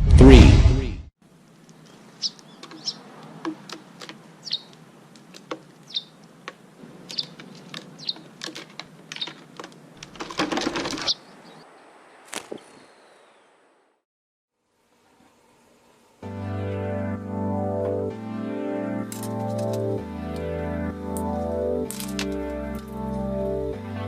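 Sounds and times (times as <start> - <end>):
small birds chirping: 1.3 - 10.1, 10.8 - 13.7
wings fluttering: 1.4 - 11.6, 12.2 - 12.9, 21.2 - 23.3.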